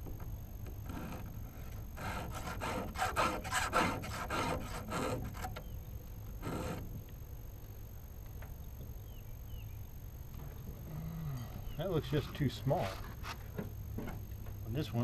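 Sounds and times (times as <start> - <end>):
hand file rasping on chain: 2.0 - 5.6.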